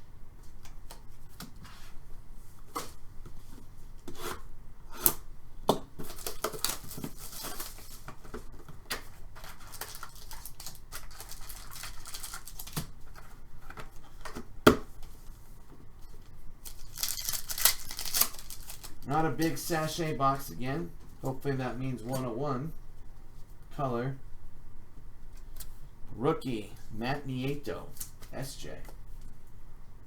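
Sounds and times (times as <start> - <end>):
card packs tearing open: 6.1 - 8.0, 9.4 - 12.9, 16.6 - 19.1.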